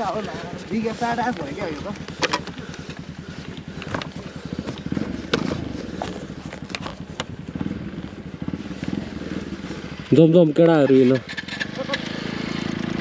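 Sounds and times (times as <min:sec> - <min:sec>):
dirt bike engine idling: 0:00.0 - 0:13.0
sharp clicks and knocks: 0:02.0 - 0:05.6.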